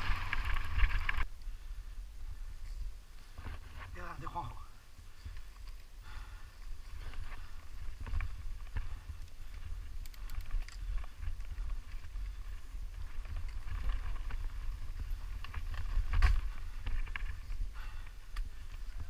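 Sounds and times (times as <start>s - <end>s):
bicycle clicking and rattling: 0.0s - 1.3s, 5.1s - 19.0s
wind rumble on microphone: 0.0s - 4.1s, 5.0s - 19.0s.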